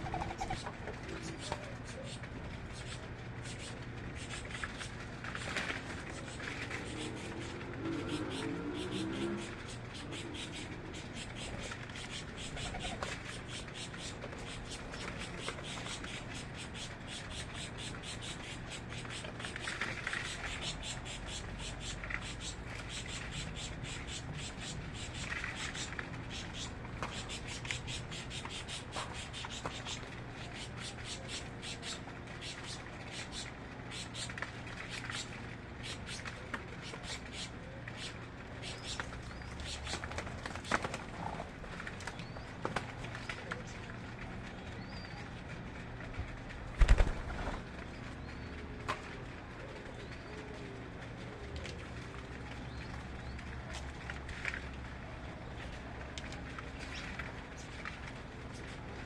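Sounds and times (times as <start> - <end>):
steady low hum: 0.0 - 59.0
small birds chirping: 0.1 - 40.9, 41.8 - 45.4, 52.5 - 54.6.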